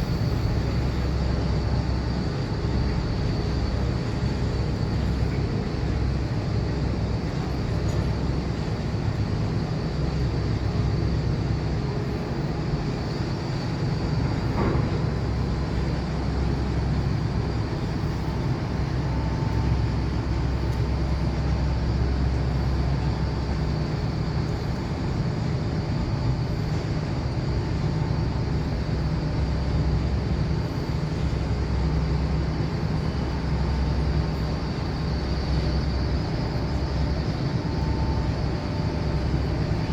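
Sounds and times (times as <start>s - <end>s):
low mechanical rumble: 0.0s - 39.9s.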